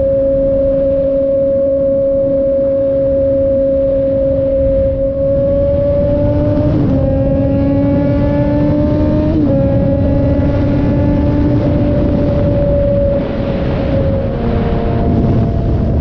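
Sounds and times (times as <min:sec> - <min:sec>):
wind rushing: 0:04.3 - 0:16.0
motorcycle engine revving: 0:05.2 - 0:16.0.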